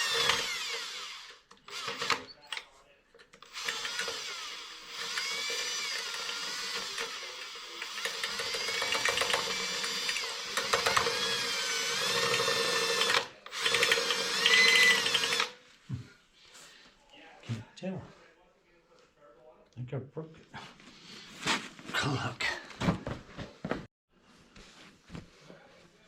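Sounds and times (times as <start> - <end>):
electric drill motor hum: 0.0 - 2.3, 3.4 - 15.6.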